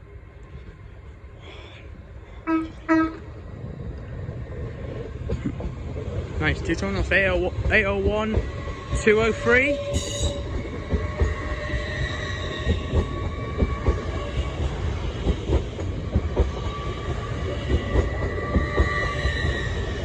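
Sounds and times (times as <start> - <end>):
train high whine: 0.0 - 20.0
train wheel clicks: 12.5 - 20.0.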